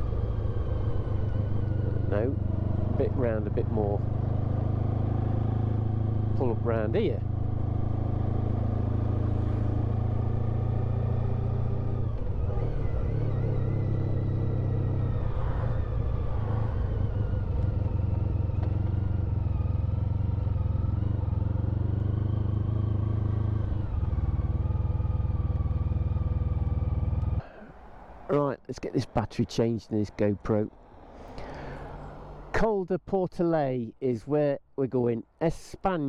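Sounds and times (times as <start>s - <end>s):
motorcycle engine idling: 16.9s - 28.3s.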